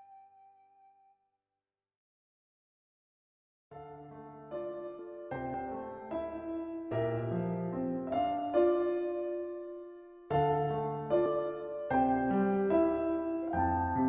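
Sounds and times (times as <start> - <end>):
slow gentle piano: 0.0 - 0.7, 3.7 - 14.0.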